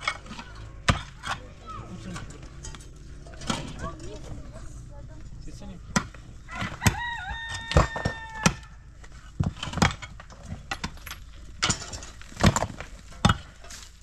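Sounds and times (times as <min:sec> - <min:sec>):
rooster crowing: 0:06.5 - 0:08.8
sharp knocks and clatters: 0:07.6 - 0:13.8.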